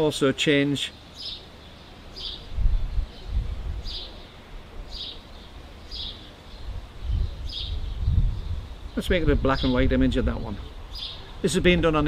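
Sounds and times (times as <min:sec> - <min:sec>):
bird chirping: 0:00.6 - 0:12.0.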